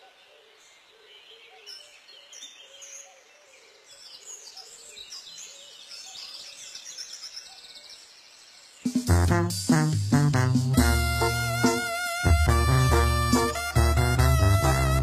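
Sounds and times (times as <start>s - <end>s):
birds chirping and singing: 0.0s - 9.0s.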